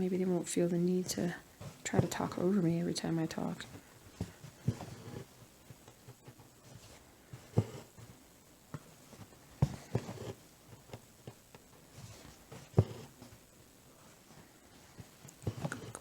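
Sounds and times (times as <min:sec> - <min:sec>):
needle tapping through fabric: 0:08.7 - 0:11.7.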